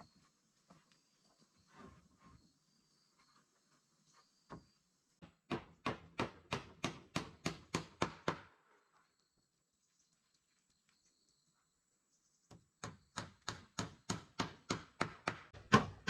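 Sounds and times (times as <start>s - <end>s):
tool striking wood: 5.2s - 8.5s, 12.8s - 16.0s.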